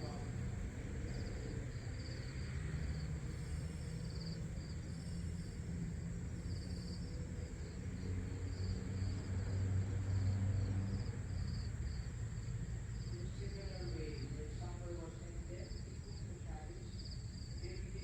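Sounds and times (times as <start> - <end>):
crickets chirping: 0.0 - 18.0
high insect drone: 0.0 - 18.0.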